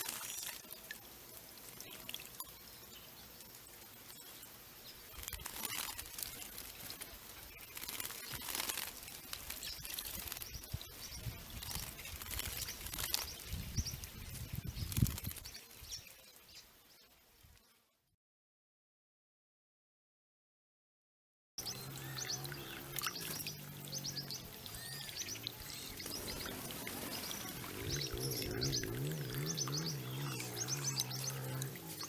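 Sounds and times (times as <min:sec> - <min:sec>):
wings fluttering: 0:00.0 - 0:00.8, 0:03.3 - 0:16.2, 0:21.6 - 0:32.0
birds splashing in water: 0:00.0 - 0:15.8, 0:21.6 - 0:32.0
bird chirps: 0:21.6 - 0:32.0.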